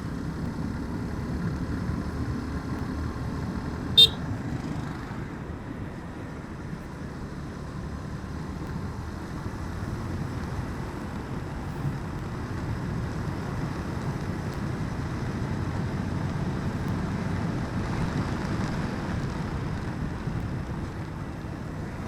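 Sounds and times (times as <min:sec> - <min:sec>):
road noise: 0:00.0 - 0:22.0
motorcycle engine: 0:00.6 - 0:05.0.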